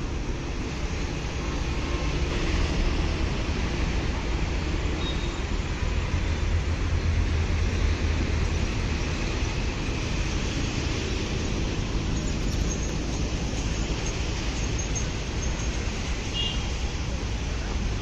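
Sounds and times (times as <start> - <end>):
train rumble and hiss: 0.0 - 18.0.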